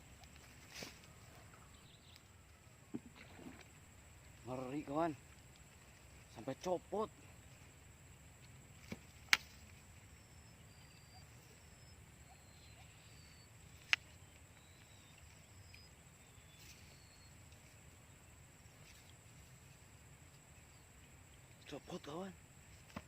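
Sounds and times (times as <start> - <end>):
high faint animal chirps: 9.4 - 19.2.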